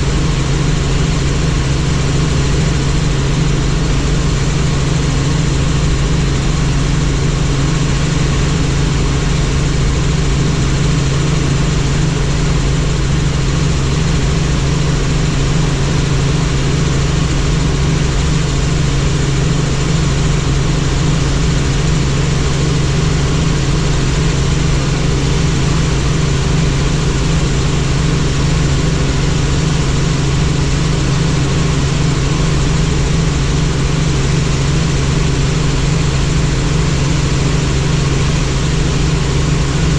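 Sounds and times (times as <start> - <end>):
helicopter rotor drone: 0.0 - 39.9.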